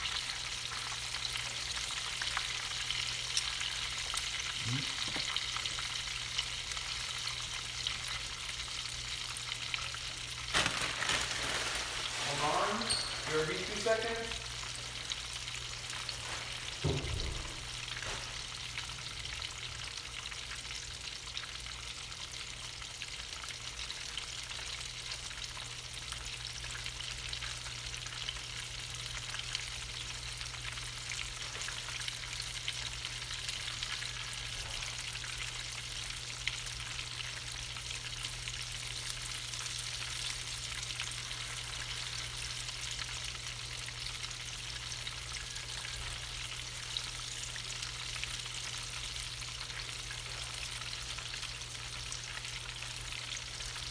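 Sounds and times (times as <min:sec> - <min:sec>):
chicken frying in hot oil: 0:00.0 - 0:53.9
low thump: 0:16.8 - 0:17.8.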